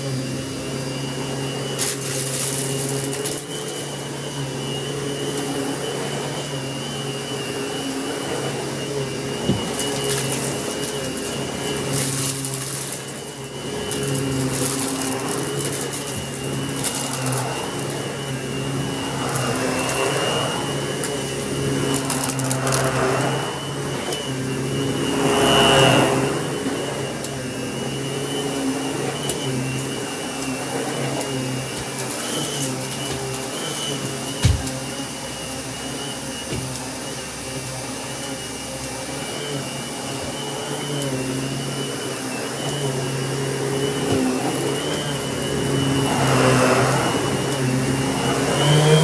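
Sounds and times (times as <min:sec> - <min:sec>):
vacuum cleaner running: 0:00.0 - 0:49.0
debris crackling up hose: 0:01.5 - 0:05.7, 0:09.0 - 0:35.2, 0:42.6 - 0:49.0.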